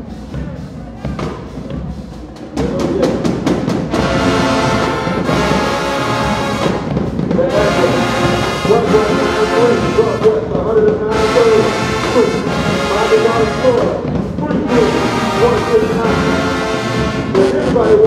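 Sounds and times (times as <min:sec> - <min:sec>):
marching band playing: 0:00.0 - 0:18.0
loud held brass chords: 0:03.8 - 0:18.0.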